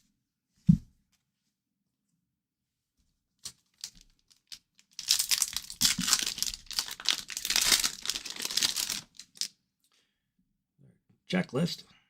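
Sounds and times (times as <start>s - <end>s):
card wrapper tearing and crinkling: 3.7s - 9.5s.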